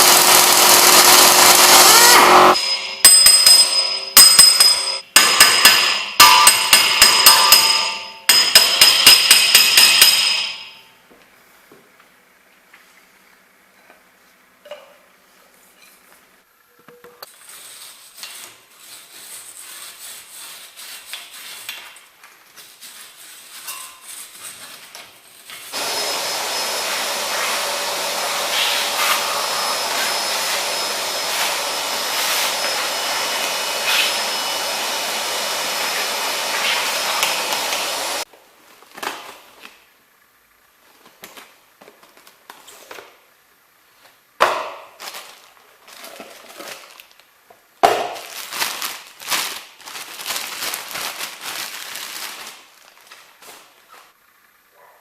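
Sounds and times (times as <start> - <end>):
power tool running: 0.0 - 2.9, 25.7 - 38.3
hand tools clinking and knocking: 2.6 - 10.8.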